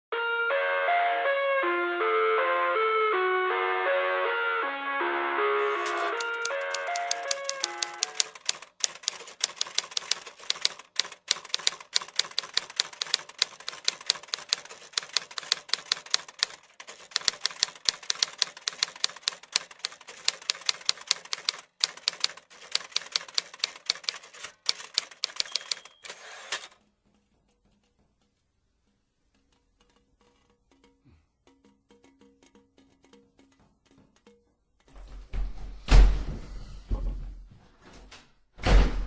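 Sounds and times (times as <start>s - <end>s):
fast uneven clicking: 5.8s - 25.8s.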